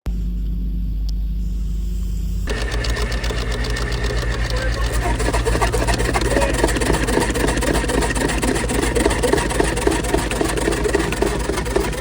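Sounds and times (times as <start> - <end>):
machinery pulsing rhythmically: 2.5 - 12.0.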